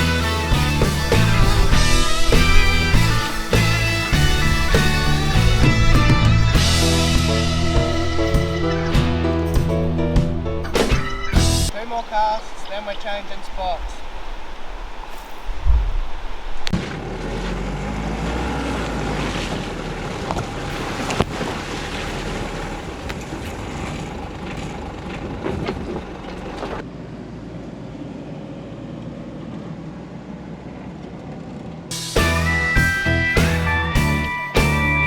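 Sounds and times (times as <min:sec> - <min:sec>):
rushing river water: 0:00.0 - 0:09.5, 0:11.7 - 0:26.8
low rumble: 0:00.0 - 0:16.9
wind buffeting microphone: 0:00.3 - 0:16.8.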